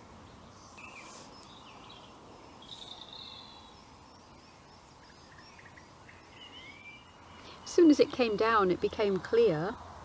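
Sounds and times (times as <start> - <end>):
distant road traffic hum: 0.0 - 10.0
bird chirps and trill: 0.6 - 8.1.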